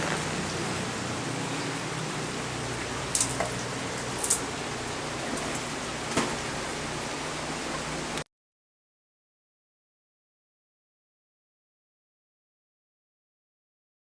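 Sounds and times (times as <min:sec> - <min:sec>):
steady rain hiss: 0:00.0 - 0:08.2.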